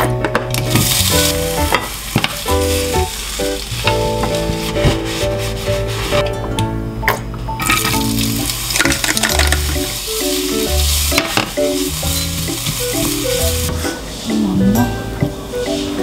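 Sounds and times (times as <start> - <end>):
background music: 0.0 - 16.0
ham sizzling in a pan: 0.5 - 6.0, 7.6 - 13.9.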